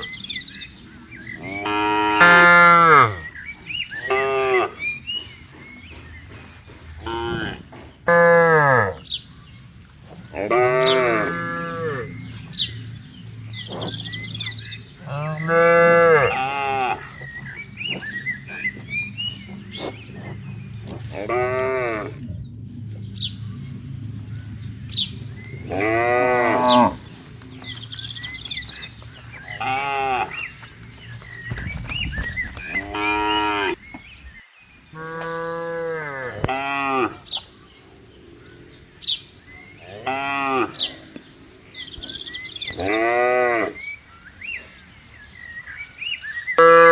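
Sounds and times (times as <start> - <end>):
cattle mooing: 1.4 - 3.3, 4.0 - 4.9, 7.0 - 9.0, 10.3 - 13.0, 13.6 - 22.3, 24.9 - 28.8, 29.4 - 30.6, 32.8 - 33.8, 35.0 - 37.3, 39.7 - 41.2, 41.8 - 43.9.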